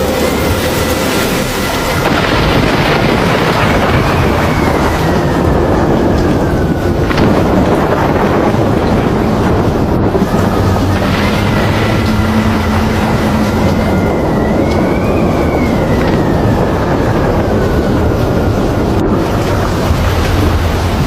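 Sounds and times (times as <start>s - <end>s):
low rumble: 0.0s - 21.0s
storm rushing: 0.0s - 21.0s
faint whistling tone sliding down: 11.4s - 17.3s.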